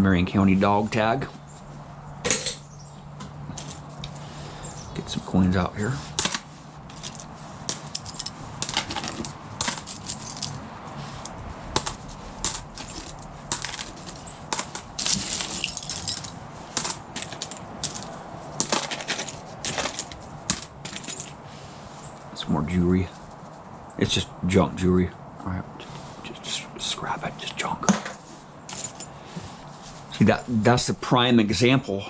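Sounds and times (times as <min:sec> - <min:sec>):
coins clinking against metal: 0:02.3 - 0:02.7, 0:03.6 - 0:04.4, 0:05.8 - 0:21.4, 0:27.9 - 0:29.2.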